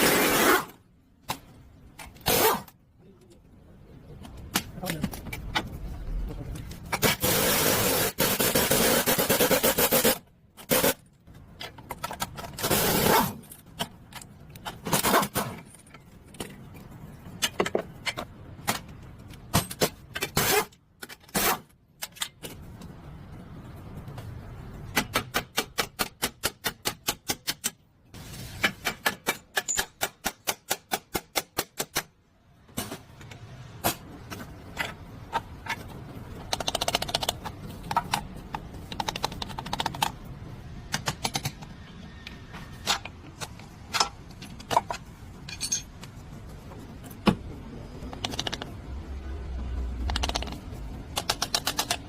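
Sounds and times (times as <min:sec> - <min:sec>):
hand tools clicking and knocking: 0:13.6 - 0:22.9, 0:28.6 - 0:32.1, 0:32.7 - 0:48.8, 0:50.0 - 0:52.0
rapid sharp clicks: 0:38.8 - 0:40.2, 0:50.0 - 0:52.0.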